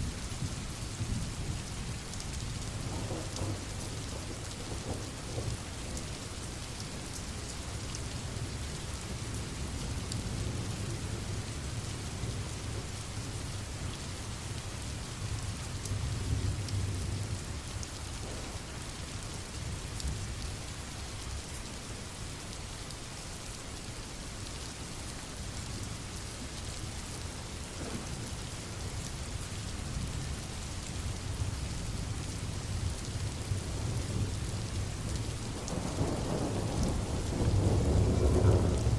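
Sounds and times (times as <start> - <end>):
steady rain falling: 0.0 - 38.9
distant thunder rumble: 2.8 - 6.0, 35.6 - 38.9.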